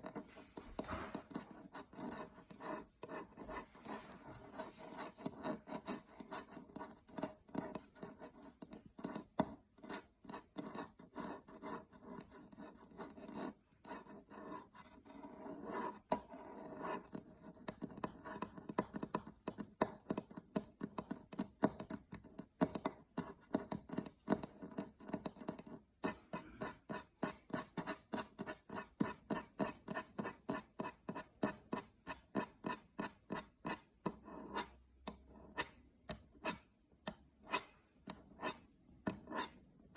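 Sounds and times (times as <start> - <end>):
fingernails scratching a surface: 0.0 - 8.4, 9.9 - 17.5, 24.5 - 36.7, 37.4 - 39.6.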